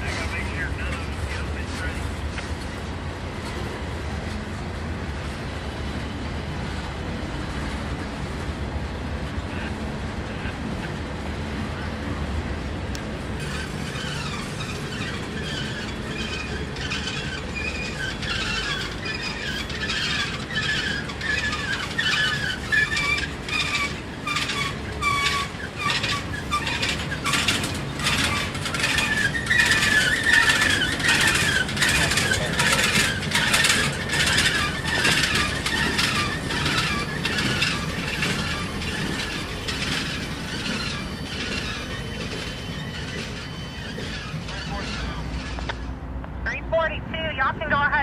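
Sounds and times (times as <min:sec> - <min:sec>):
train wheels clicking over rail joints: 0:00.0 - 0:09.4, 0:10.0 - 0:46.4
wheel flange squeal: 0:13.4 - 0:46.1.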